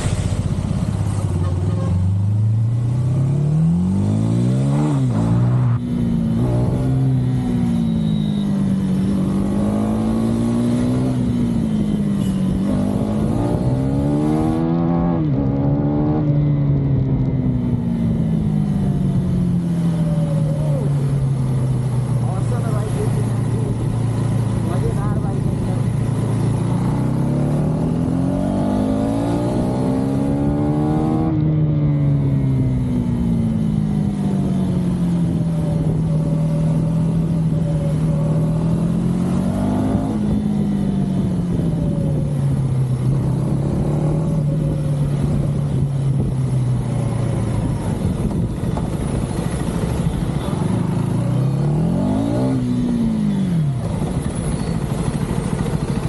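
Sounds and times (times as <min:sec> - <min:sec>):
steady rushing noise: 0:00.0 - 0:06.5
motorcycle engine revving: 0:00.0 - 0:56.0.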